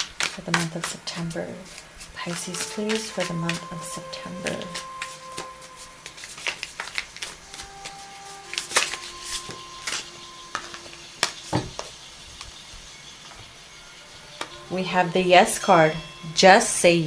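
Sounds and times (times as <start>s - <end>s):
cards being shuffled: 0.0s - 11.4s.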